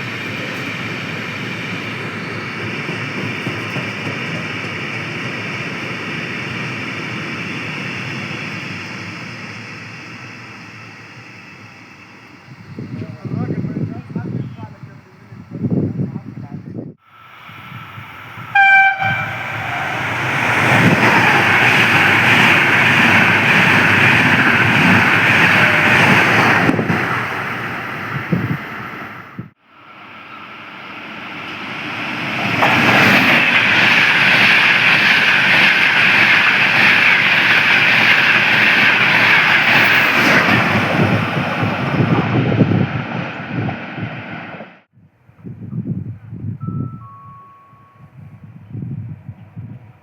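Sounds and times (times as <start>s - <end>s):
train passing at speed: 0.0s - 44.9s
train horn blast: 18.4s - 21.7s.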